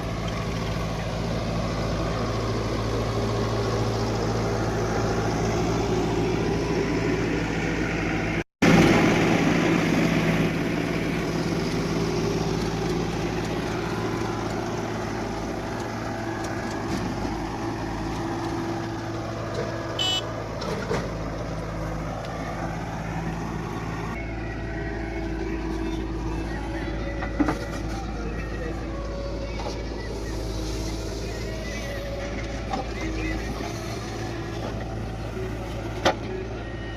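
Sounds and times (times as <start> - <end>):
diesel engines running: 0.0 - 36.9
short high beep: 20.0 - 20.3.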